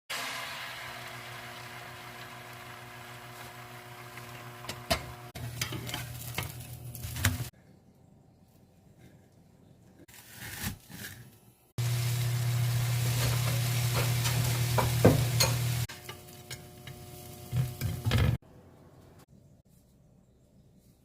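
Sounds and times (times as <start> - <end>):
food sizzling in a frying pan: 0.1 - 7.5, 11.8 - 18.3.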